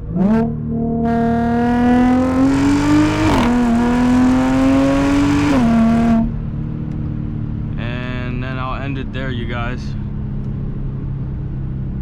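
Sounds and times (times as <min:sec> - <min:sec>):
car engine accelerating with gear shifts: 0:00.0 - 0:12.0.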